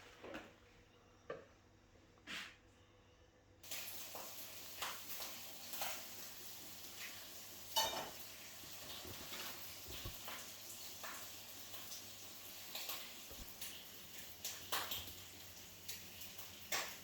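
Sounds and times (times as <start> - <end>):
pancake sizzling in a pan: 3.6 - 17.0.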